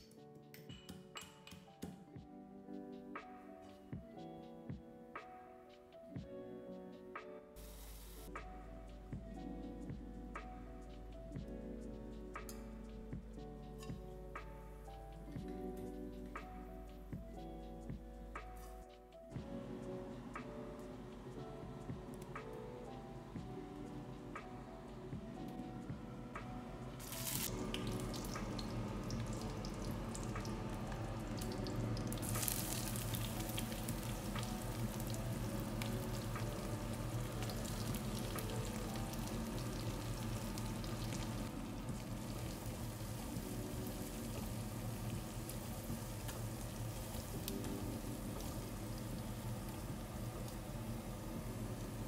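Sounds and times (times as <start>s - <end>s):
onions sizzling in hot oil: 27.0s - 52.0s.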